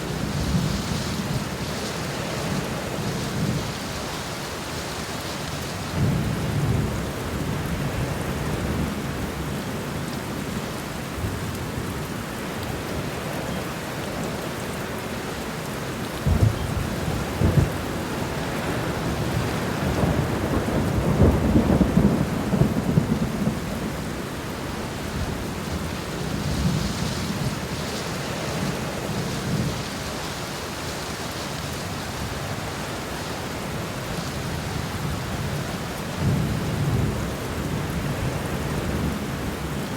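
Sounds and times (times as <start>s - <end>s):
steady rain: 0.0s - 39.9s
thunder rumbling: 16.2s - 30.1s.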